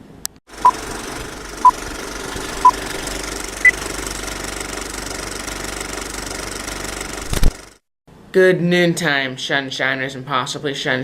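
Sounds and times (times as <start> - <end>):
steady engine hum: 0.5 - 7.8.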